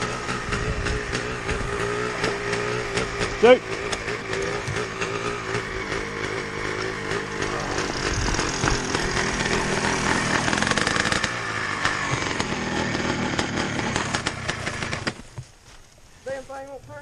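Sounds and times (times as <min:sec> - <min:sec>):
motorcycle engine revving high: 0:00.0 - 0:15.2.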